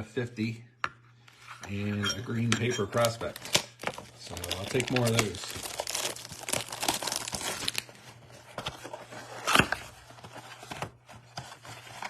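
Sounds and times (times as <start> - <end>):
packaging crinkling and tearing: 3.0 - 12.0
packaging rip: 3.4 - 7.9.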